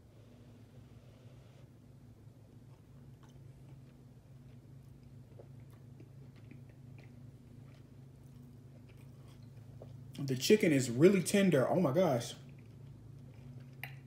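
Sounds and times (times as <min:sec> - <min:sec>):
steady low hum: 0:00.0 - 0:14.0
person chewing: 0:02.5 - 0:10.3, 0:12.4 - 0:14.0.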